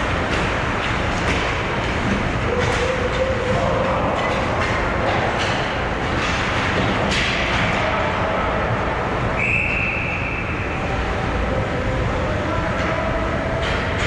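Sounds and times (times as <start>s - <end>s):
skates and sticks scraping: 0.0s - 8.4s
referee's whistle: 9.4s - 10.8s.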